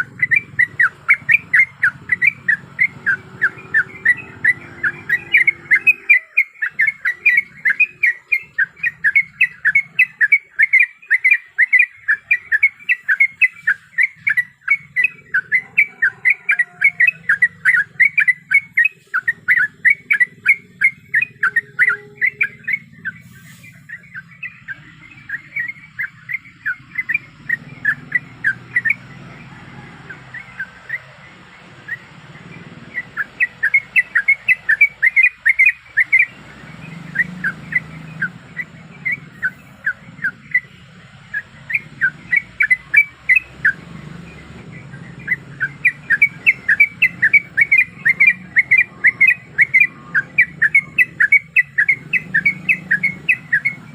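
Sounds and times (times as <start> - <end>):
bird chirping in fast runs: 0.0 - 53.9.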